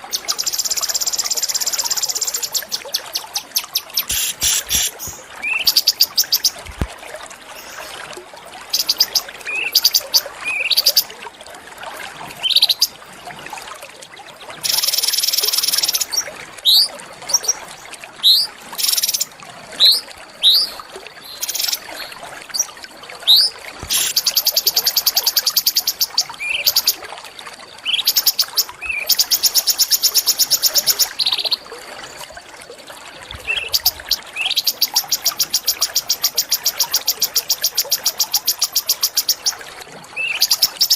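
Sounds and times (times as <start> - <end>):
songbird chirps: 0.1 - 6.6, 33.4 - 39.6.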